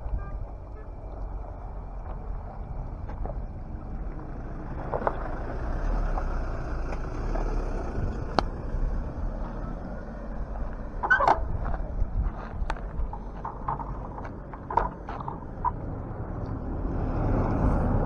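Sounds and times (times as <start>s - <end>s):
wind and rolling bicycle tyres: 0.0s - 18.0s
short rattle: 10.1s - 16.2s.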